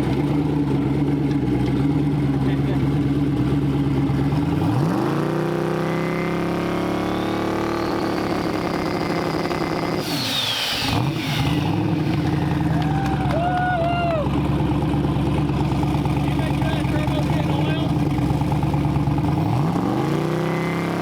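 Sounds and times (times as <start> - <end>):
car engine revving: 0.0 - 21.0
turbo whistle: 6.8 - 8.7.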